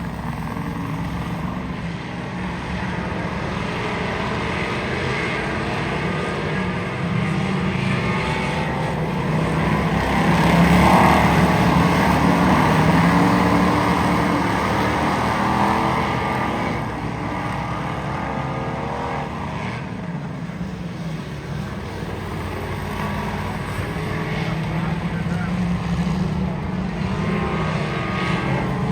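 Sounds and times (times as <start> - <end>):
race car engine running hard: 0.0 - 28.9.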